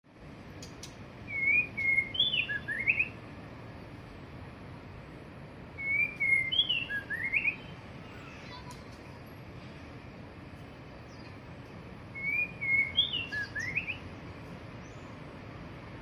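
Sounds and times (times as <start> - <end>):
low background hiss: 0.1 - 16.0
bird singing whistled notes: 0.6 - 3.2, 5.8 - 8.8, 11.1 - 11.4, 12.1 - 14.2.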